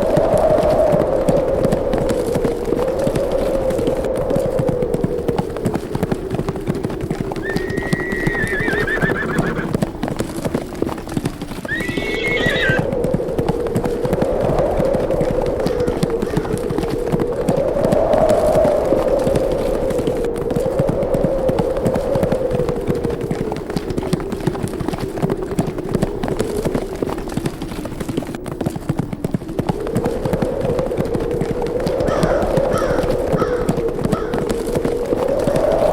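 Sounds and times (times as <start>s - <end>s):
horses galloping hoofbeats: 0.0s - 35.9s
howling wind: 0.0s - 35.9s
horse whinnying: 7.4s - 9.7s, 11.7s - 12.9s.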